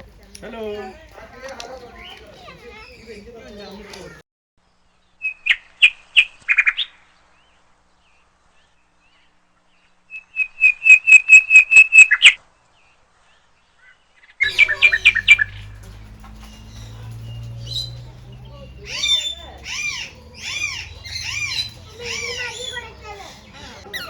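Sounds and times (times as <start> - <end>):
low hum: 14.4 - 21.8
parrots squawking: 14.4 - 24.0.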